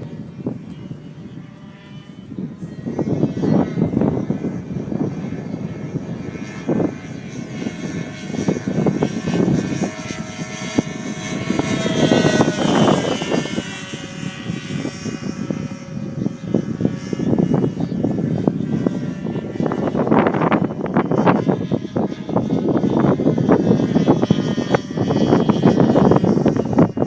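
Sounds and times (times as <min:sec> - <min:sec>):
model airplane engines droning: 0:00.0 - 0:27.0.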